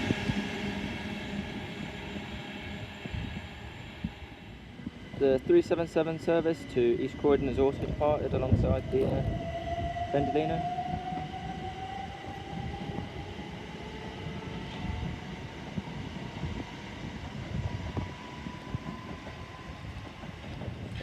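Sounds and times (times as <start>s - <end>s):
train motors whining: 0.0s - 15.5s
wheels rumbling on rails: 0.0s - 21.0s.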